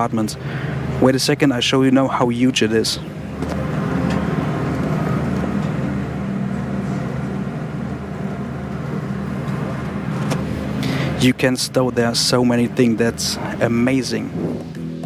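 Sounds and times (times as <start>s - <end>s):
cabin ventilation hum and hiss: 0.0s - 15.0s.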